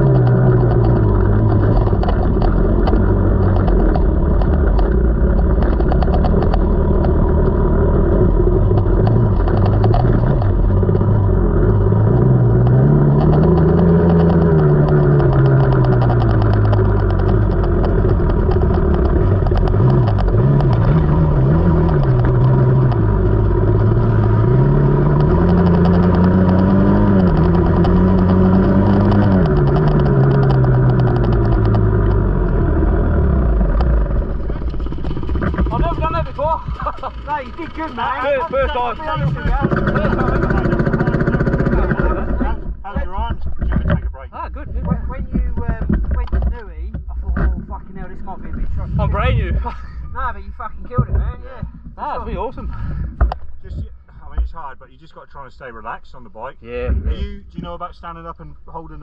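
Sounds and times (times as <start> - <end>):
dirt bike engine revving: 0.0 - 43.7.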